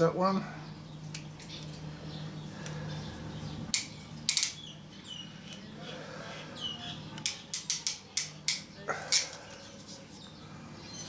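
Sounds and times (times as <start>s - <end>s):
clicks and taps of wire work: 7.2s - 9.4s.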